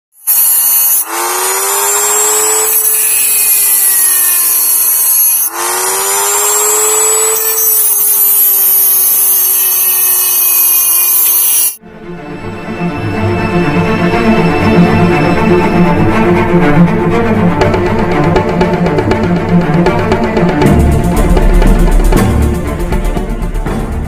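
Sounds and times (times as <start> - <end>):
die grinder cutting metal: 0.1 - 11.8
music: 11.8 - 24.0.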